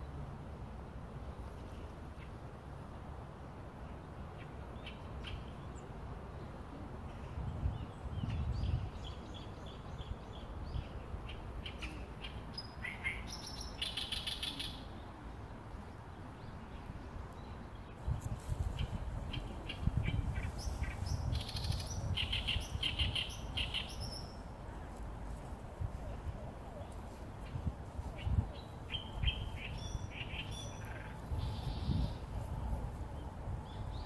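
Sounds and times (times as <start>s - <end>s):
small birds chirping: 7.7s - 24.5s, 26.6s - 32.4s.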